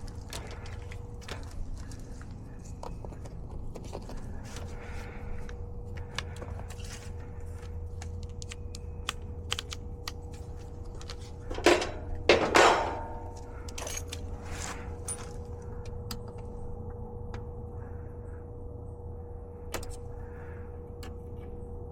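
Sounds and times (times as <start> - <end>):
steady low hum: 0.0 - 21.9
tools clicking and rattling: 9.5 - 15.4.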